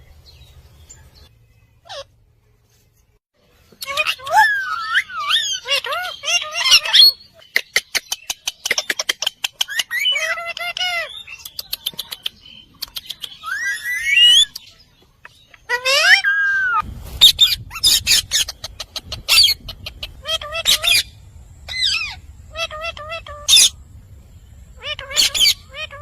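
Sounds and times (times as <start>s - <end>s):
parrot squawks and whistles: 3.8s - 7.2s, 13.4s - 14.6s.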